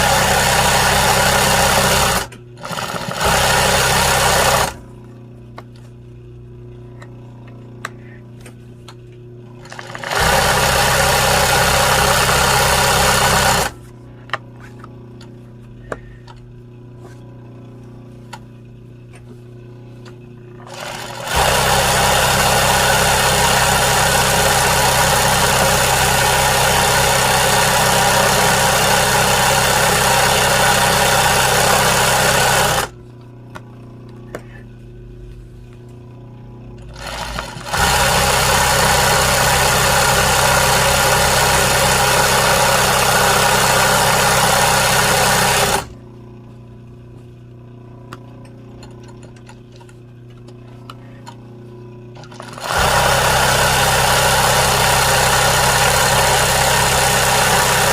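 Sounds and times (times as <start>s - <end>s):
sewing machine stitching: 0.0s - 4.8s, 9.6s - 13.8s, 20.6s - 33.0s, 36.9s - 46.0s, 52.2s - 57.9s.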